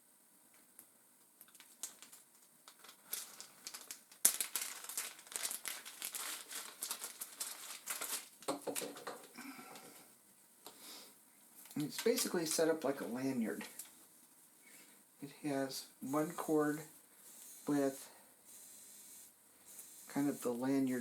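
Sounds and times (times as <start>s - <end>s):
packaging snapping open: 1.4s - 9.1s
packaging crinkling: 1.4s - 9.4s.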